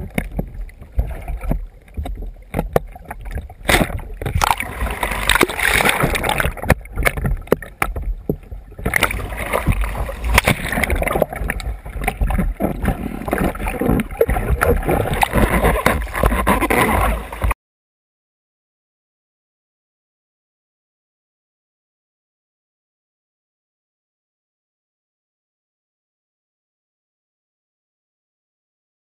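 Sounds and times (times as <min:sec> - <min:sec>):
water splashing against kayak: 0:00.0 - 0:17.6.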